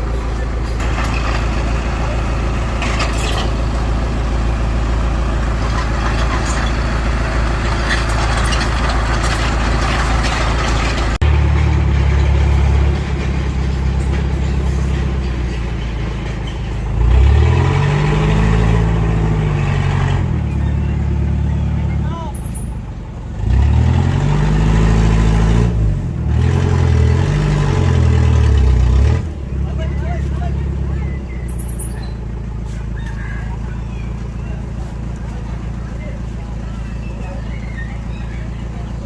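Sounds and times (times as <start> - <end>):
diesel engine running and revving: 0.0 - 39.0.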